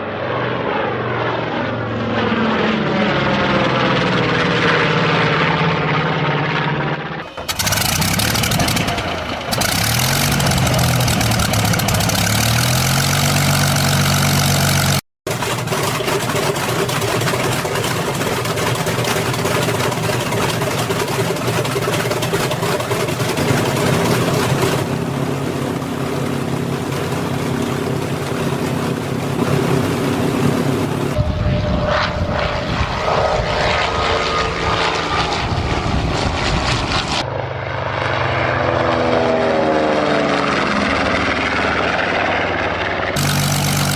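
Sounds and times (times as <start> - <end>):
propeller aircraft engines: 0.0 - 43.9.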